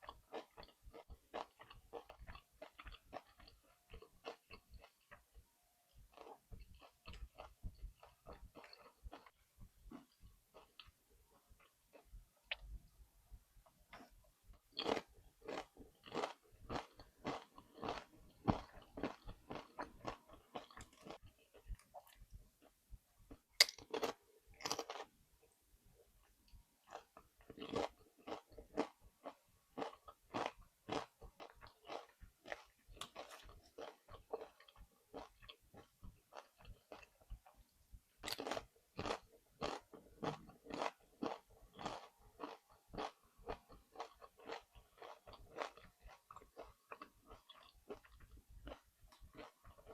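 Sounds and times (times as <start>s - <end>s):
chewing crunchy chips: 0.0s - 12.7s, 13.9s - 25.2s, 26.2s - 49.9s.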